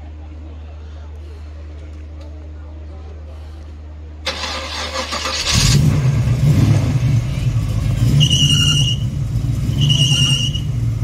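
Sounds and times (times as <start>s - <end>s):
engine running with low rumble: 4.2s - 11.0s
engine cranking: 4.3s - 9.0s.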